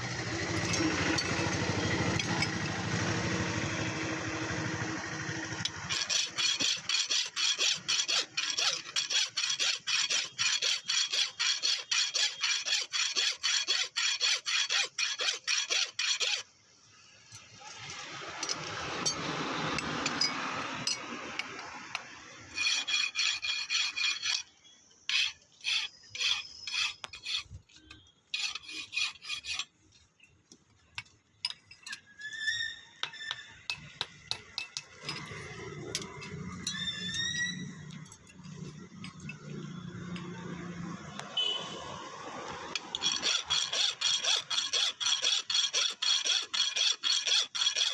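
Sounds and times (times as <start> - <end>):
hand file rasping on steel: 5.6 - 16.5, 22.6 - 24.5, 25.1 - 27.6, 28.3 - 29.7, 42.8 - 47.9.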